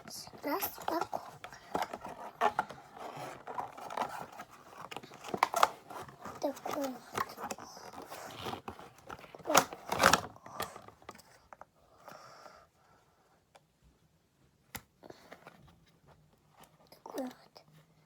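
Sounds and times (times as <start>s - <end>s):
packaging rustling and crinkling: 0.0s - 11.3s.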